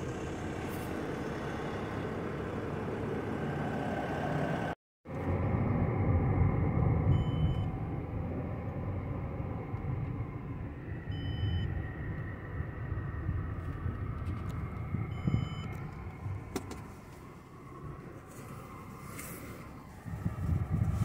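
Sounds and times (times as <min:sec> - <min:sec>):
car engine and road rumble: 0:00.0 - 0:21.0
faint high beeps: 0:07.1 - 0:07.8, 0:11.1 - 0:11.8, 0:15.0 - 0:15.8.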